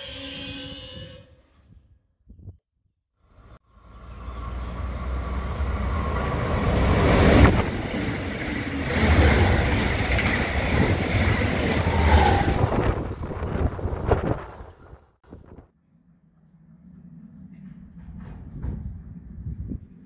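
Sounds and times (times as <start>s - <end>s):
train wheels rumbling on rails: 4.2s - 15.0s, 17.2s - 20.0s.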